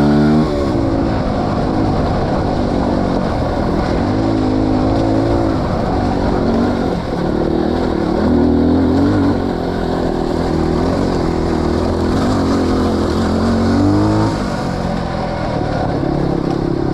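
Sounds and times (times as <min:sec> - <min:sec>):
motorcycle engine revving: 0:00.0 - 0:16.9.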